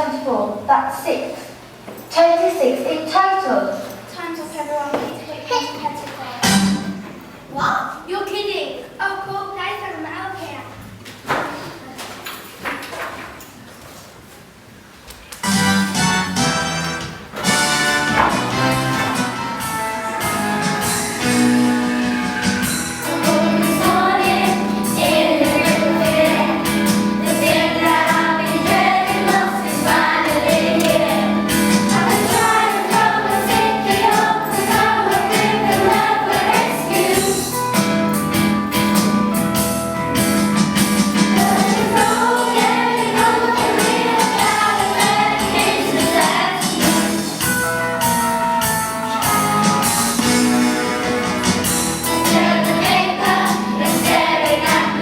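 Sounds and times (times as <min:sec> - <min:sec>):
instrumental backing music: 0:06.4 - 0:07.5, 0:15.4 - 0:55.0
group of people singing: 0:23.0 - 0:37.6, 0:41.1 - 0:47.4, 0:52.1 - 0:55.0.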